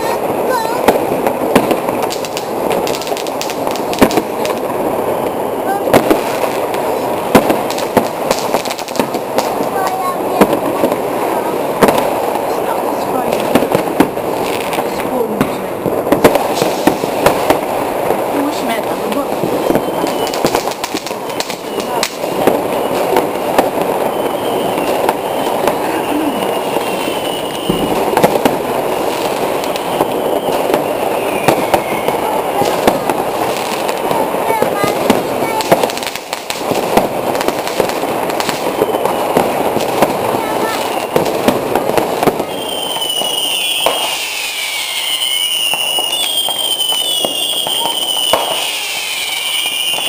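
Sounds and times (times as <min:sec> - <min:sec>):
fireworks crackling: 0:00.0 - 0:50.0
sharp firework bangs: 0:00.0 - 0:50.0
faint high whistle: 0:05.0 - 0:05.7, 0:19.6 - 0:20.4, 0:24.0 - 0:28.0, 0:29.7 - 0:32.3, 0:42.4 - 0:50.0.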